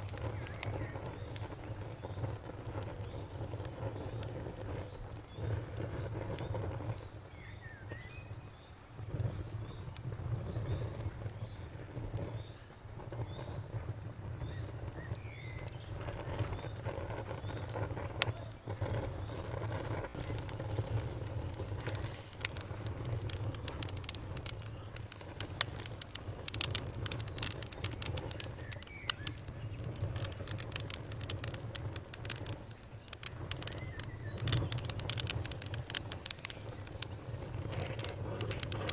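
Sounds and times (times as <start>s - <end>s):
campfire crackling and popping: 0.0s - 38.9s
insect chirping: 0.0s - 38.9s
low rumble of flames: 0.0s - 38.9s
bird chirping: 33.5s - 35.0s.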